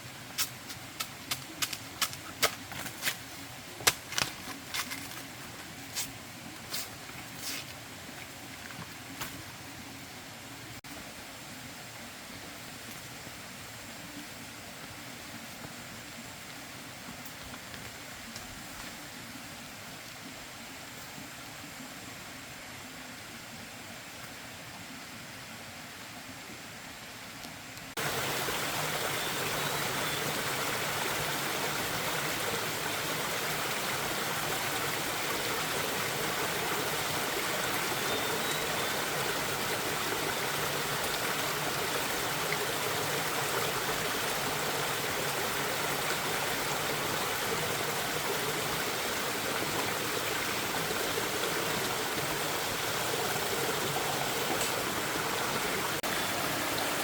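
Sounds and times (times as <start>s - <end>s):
running water rushing: 27.9s - 57.0s.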